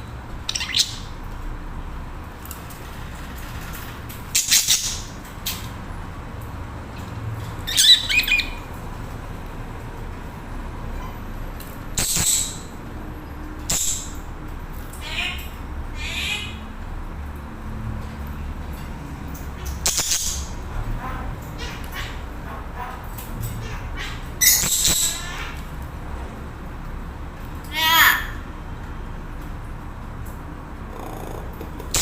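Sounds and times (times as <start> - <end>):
low background hum: 0.0 - 32.0
budgerigars chirping and chattering: 0.5 - 1.1, 4.4 - 5.2, 7.6 - 8.6, 12.0 - 12.7, 13.7 - 14.2, 19.7 - 20.6, 23.6 - 25.6.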